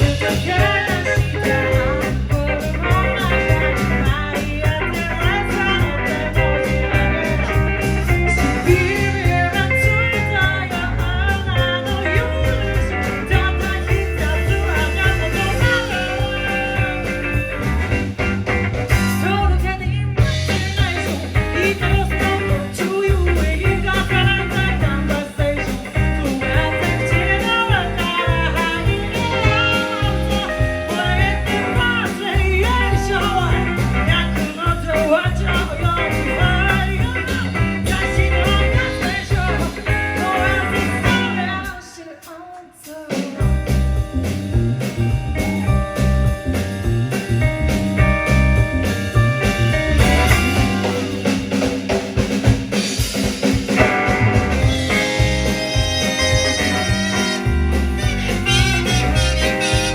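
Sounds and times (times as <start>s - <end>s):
live blues-rock band with singing: 0.0s - 59.9s.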